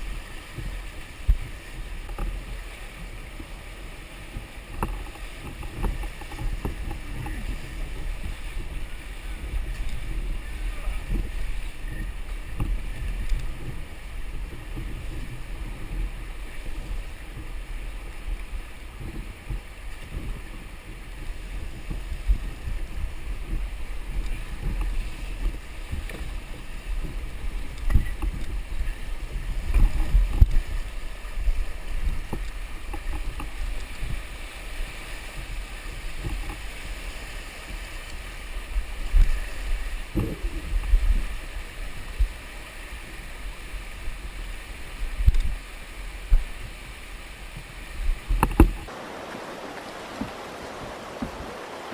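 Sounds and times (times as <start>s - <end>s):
wind buffeting microphone: 0.0s - 37.9s, 43.8s - 51.9s
water rushing: 0.0s - 40.1s, 45.6s - 51.9s.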